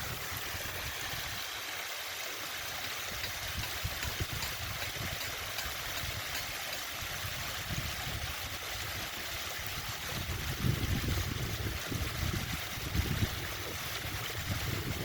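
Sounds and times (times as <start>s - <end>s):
water splashing down waterfall fountain: 0.0s - 15.0s.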